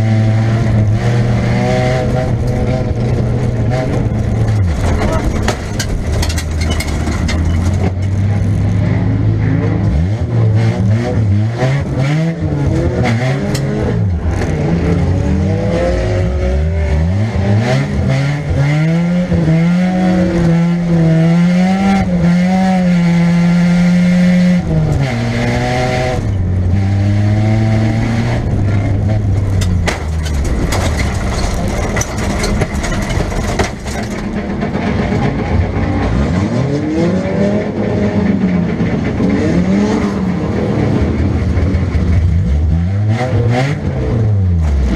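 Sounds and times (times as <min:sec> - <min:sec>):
car engine revving: 0:00.0 - 0:44.9
sharp knocks and clatter: 0:01.6 - 0:08.3, 0:29.1 - 0:36.5.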